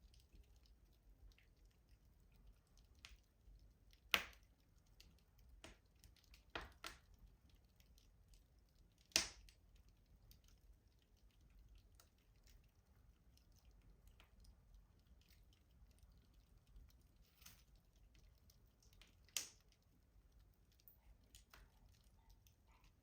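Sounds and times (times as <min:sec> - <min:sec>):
wood fire crackling: 0:00.0 - 0:23.0
loud sharp pops of fire: 0:09.1 - 0:09.5.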